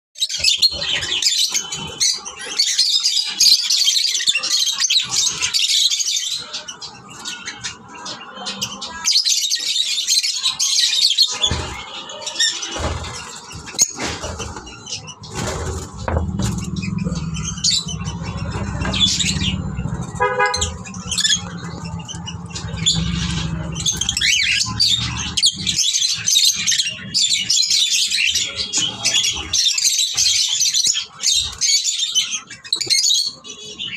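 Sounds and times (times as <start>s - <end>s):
lovebirds chattering and chirping: 0.2s - 33.9s
low rumble of traffic: 14.4s - 29.5s.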